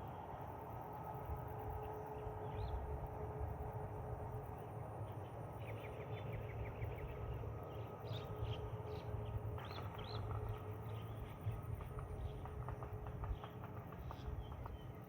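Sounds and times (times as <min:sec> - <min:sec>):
faint constant hum: 0:00.0 - 0:15.0.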